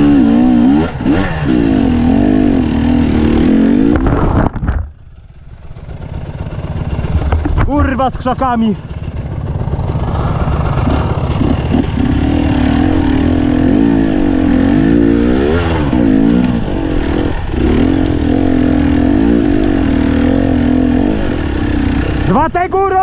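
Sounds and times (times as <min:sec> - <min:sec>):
dirt bike engine revving: 0:00.0 - 0:04.5, 0:05.2 - 0:23.0.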